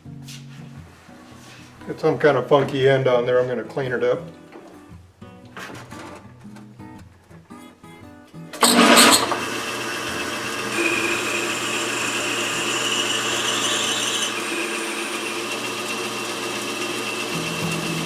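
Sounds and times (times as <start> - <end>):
metal lathe motor hum: 8.6 - 18.0.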